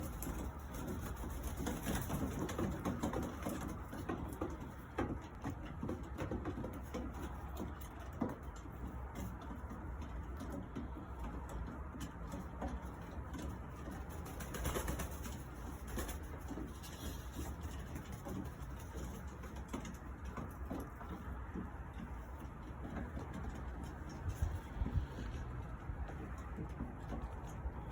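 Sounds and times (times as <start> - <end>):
birds clicking and rustling: 0.0 - 27.9.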